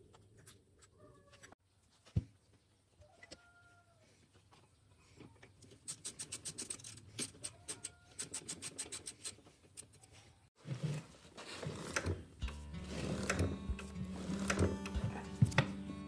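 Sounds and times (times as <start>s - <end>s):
busy mechanical sound: 10.7s - 16.0s.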